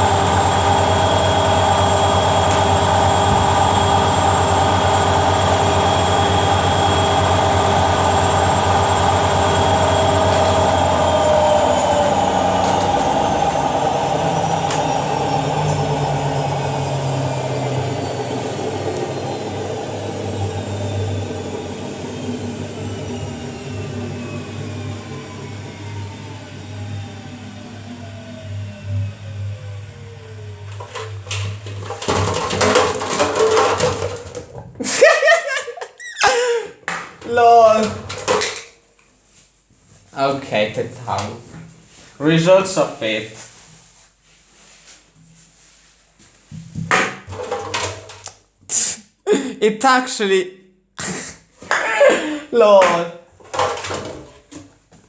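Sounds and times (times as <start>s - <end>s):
washing machine spin winding down: 0.0s - 36.6s
washing machine clattering: 30.8s - 34.7s.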